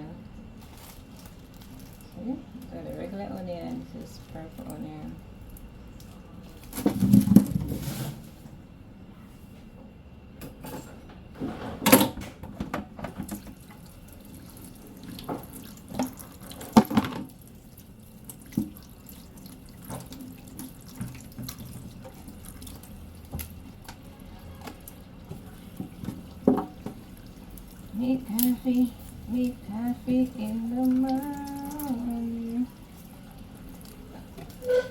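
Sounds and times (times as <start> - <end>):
tap water splashing in sink: 12.7 - 34.8.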